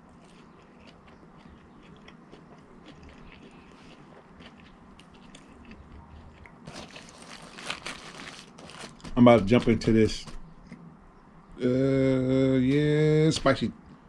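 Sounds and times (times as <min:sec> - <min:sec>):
chewing crunchy food: 0:00.0 - 0:09.2.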